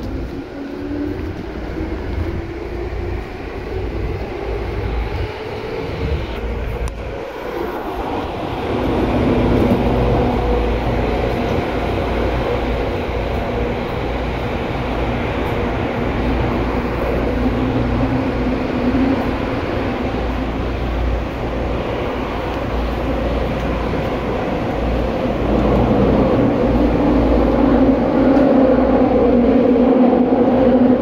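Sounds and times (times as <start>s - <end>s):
train wheel and track noise: 0.0s - 31.0s.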